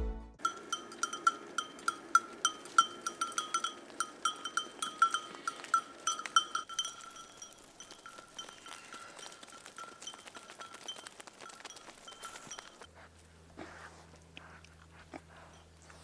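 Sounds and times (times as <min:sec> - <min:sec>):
livestock bells clanking: 0:00.4 - 0:12.9.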